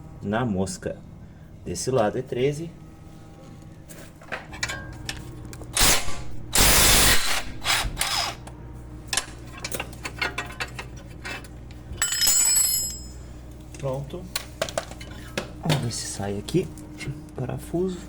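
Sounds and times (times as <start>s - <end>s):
ringing metal clinks: 12.0s - 13.2s.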